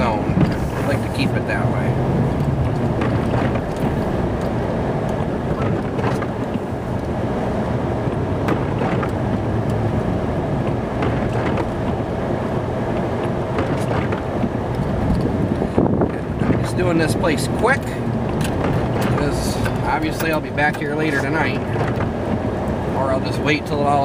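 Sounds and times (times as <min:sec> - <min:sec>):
truck engine running: 0:00.0 - 0:24.0
faint clicks and knocks: 0:02.3 - 0:07.2, 0:10.6 - 0:12.0.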